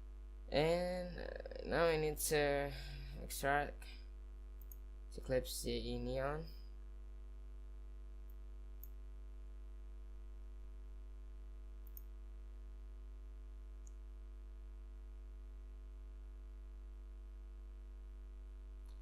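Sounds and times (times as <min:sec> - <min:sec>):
electrical mains hum: 0:00.0 - 0:19.0
faint ticks: 0:11.8 - 0:12.2.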